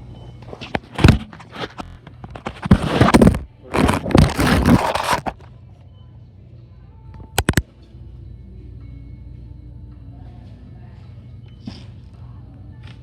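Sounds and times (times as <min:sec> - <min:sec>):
scraping and crinkling noise: 0:00.4 - 0:05.5.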